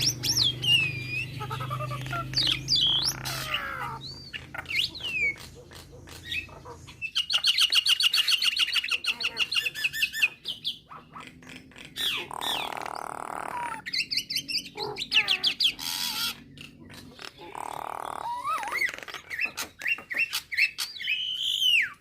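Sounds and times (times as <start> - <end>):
harsh rasping bird call: 0.0 - 5.4
myna chirping and whistling: 0.0 - 22.0.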